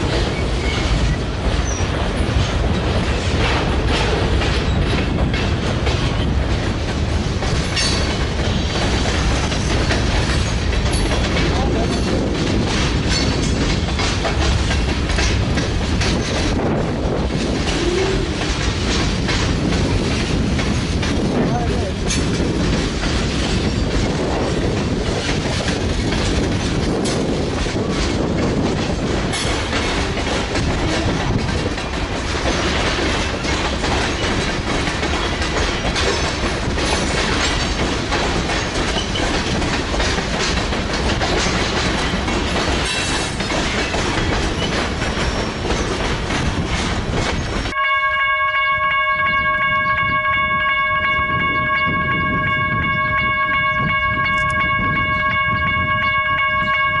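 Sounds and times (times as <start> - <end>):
train wheels rumbling and clacking: 0.0 - 57.0
locomotive air horn: 47.8 - 57.0.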